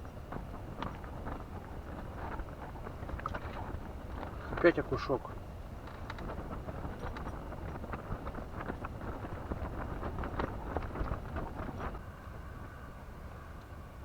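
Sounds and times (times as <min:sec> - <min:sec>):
wind buffeting microphone: 0:00.0 - 0:12.9
small clicks and taps: 0:05.8 - 0:12.0.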